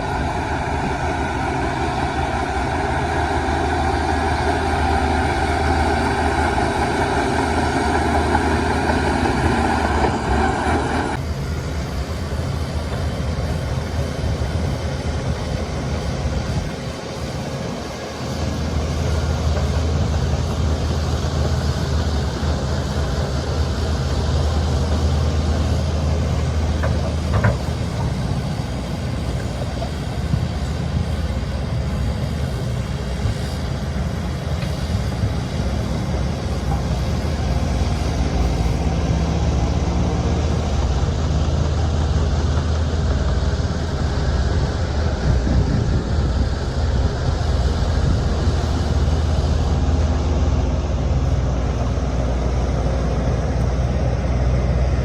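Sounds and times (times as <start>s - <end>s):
short wavering whine: 0.0s - 12.2s
bulldozer diesel engine running: 0.0s - 55.0s.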